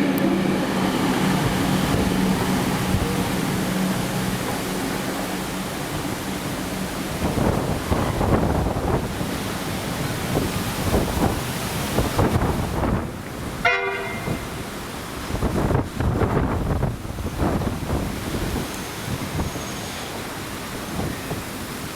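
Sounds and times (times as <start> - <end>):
electric train running: 0.0 - 13.0
train horn toot: 13.6 - 14.7.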